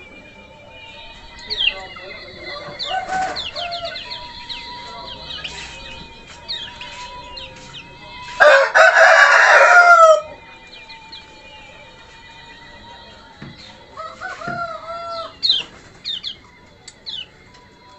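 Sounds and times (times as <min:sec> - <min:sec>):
rooster crowing: 0:00.0 - 0:17.4
small bird chirping: 0:15.0 - 0:17.5.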